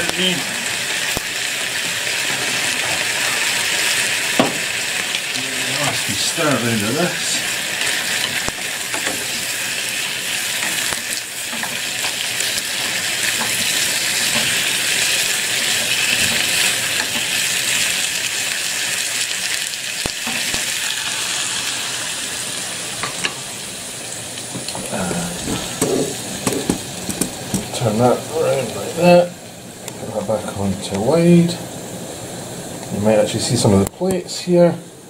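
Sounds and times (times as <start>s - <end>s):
vegetables sizzling in hot oil: 0.0s - 35.0s
wooden spatula knocking: 25.5s - 27.7s.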